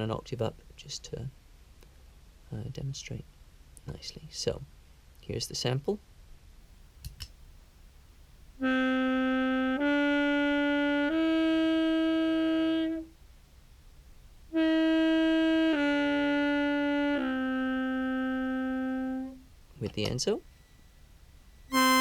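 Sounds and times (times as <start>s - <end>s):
contrabass clarinet held notes: 8.6s - 13.2s, 14.5s - 19.4s, 21.7s - 22.0s.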